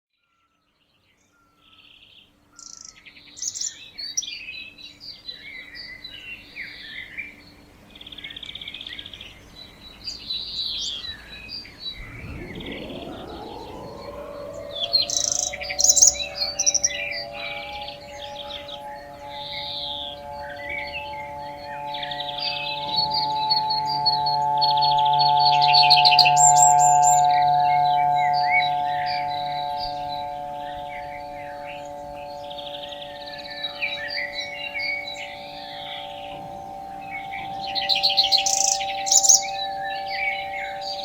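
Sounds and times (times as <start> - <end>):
songbirds chirping: 0.7 - 41.0
warning siren winding up: 11.9 - 41.0.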